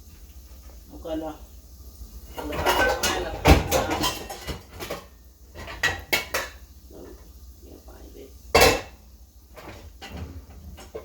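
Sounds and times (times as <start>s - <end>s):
cookware and utensils clattering: 2.2s - 7.2s, 8.5s - 11.0s.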